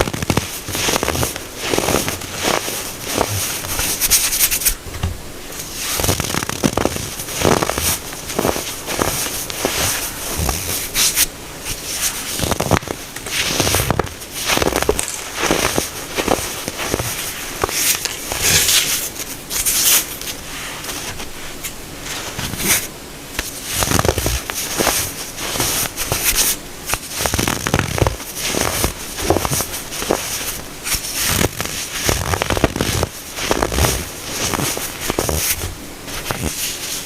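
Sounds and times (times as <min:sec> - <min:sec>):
baking soda crunching: 0:05.6 - 0:20.1, 0:23.4 - 0:36.9.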